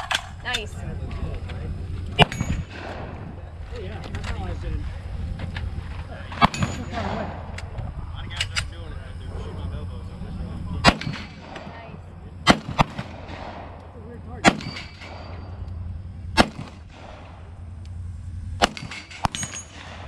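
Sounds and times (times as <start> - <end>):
gunshots: 2.2 - 3.4, 6.3 - 7.6, 10.8 - 15.6, 16.3 - 17.6, 18.6 - 20.0.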